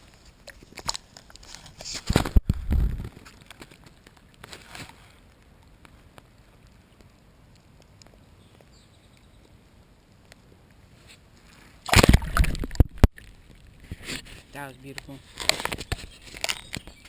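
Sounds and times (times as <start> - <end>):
water sloshing and splashing: 11.3 - 14.6.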